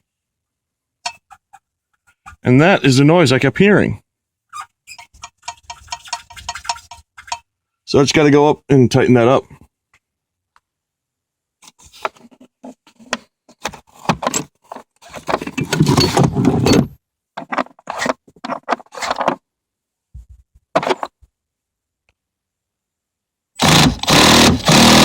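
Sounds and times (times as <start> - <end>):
metallic clinks and rattles: 4.9 - 7.4.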